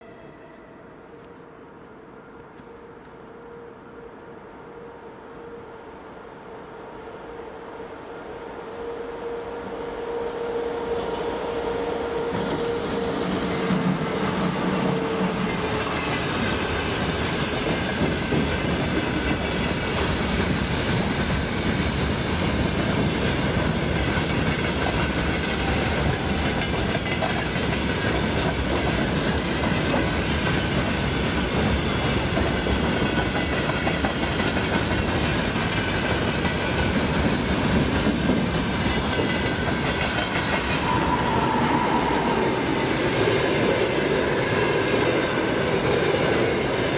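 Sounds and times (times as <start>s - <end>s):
passenger train passing: 0.0s - 46.9s
steel wheels rolling on rails: 11.0s - 46.9s.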